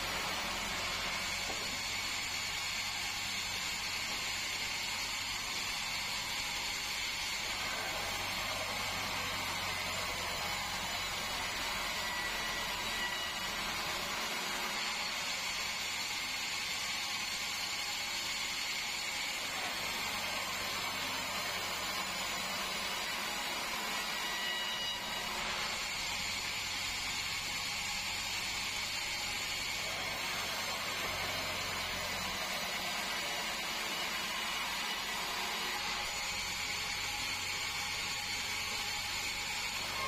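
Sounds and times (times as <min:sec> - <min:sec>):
band sawmill running: 0:00.0 - 0:40.0.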